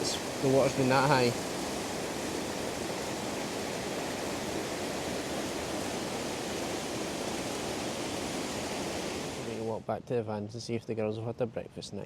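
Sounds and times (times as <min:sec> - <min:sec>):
river rushing through rapids: 0:00.0 - 0:09.6.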